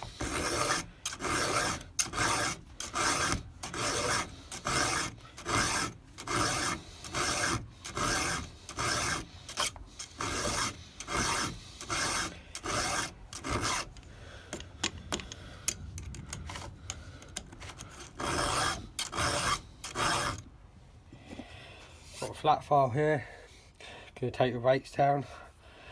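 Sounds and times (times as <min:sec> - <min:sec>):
hand file rasping on saw chain: 0:00.0 - 0:14.1, 0:16.3 - 0:20.4.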